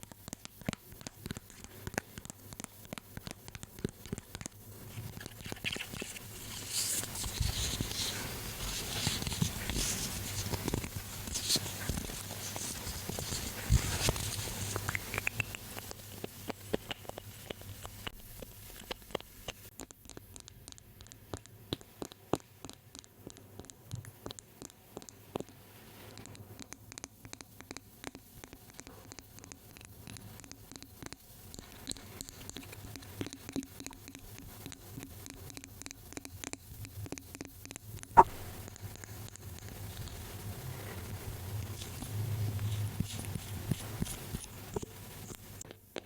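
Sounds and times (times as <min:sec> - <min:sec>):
light taps and clicks: 0:00.0 - 0:04.6.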